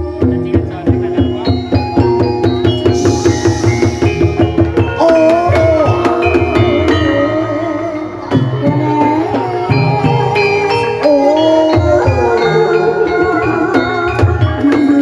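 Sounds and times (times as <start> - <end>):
struck metallophone notes: 0.0 - 15.0
wavering sung melody: 0.0 - 15.0
rapid drum strokes: 0.5 - 7.1.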